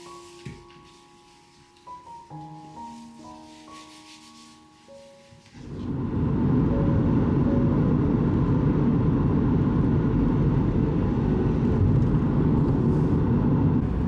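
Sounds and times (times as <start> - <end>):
car road and engine rumble: 5.7 - 14.0.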